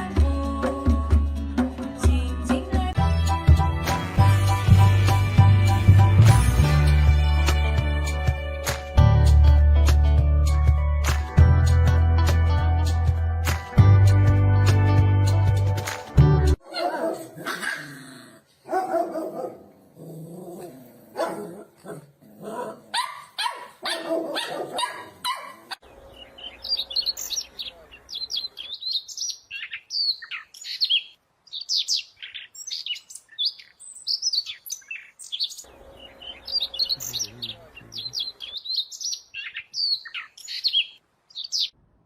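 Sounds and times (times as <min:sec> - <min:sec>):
dog barking: 0:18.6 - 0:19.8, 0:20.6 - 0:25.8
small bird chirping rapidly: 0:25.8 - 0:41.8.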